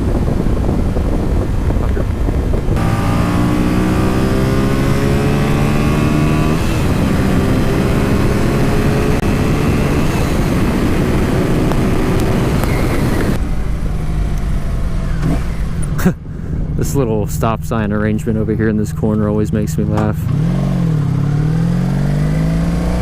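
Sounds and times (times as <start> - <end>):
wind on microphone: 0.0 - 19.4
motorcycle engine accelerating: 0.0 - 23.0.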